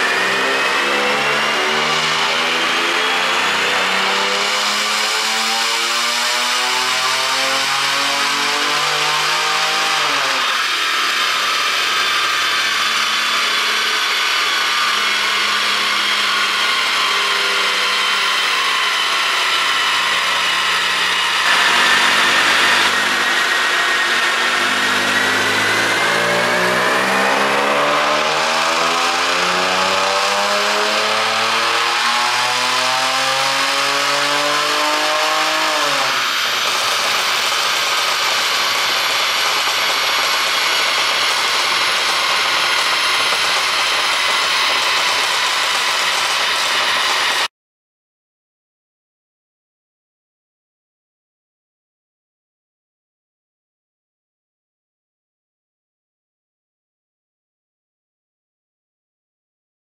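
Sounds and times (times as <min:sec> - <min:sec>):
car engine revving on dyno: 0:00.0 - 0:47.5.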